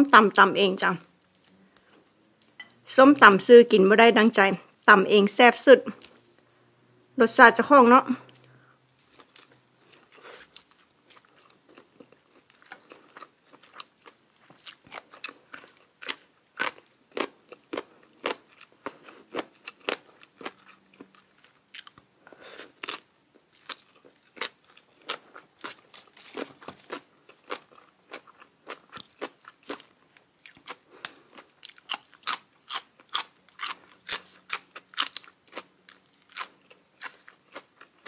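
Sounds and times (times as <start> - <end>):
chewing crisp food: 8.2 - 38.0.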